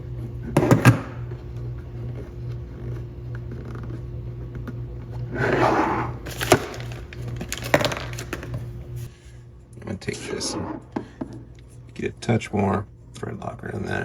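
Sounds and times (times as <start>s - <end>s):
steady low hum: 0.0s - 14.0s
rustling scrape of parts: 5.3s - 9.1s.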